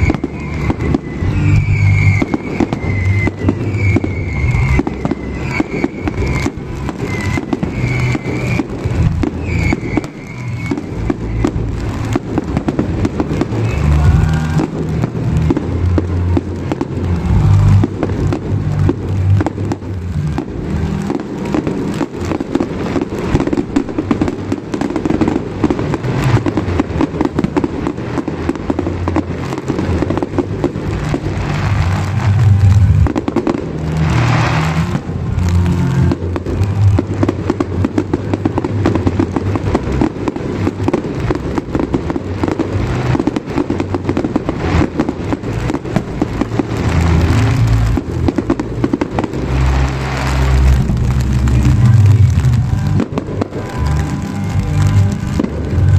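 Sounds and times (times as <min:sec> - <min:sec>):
fireworks bangs and crackles: 0:00.0 - 0:55.9.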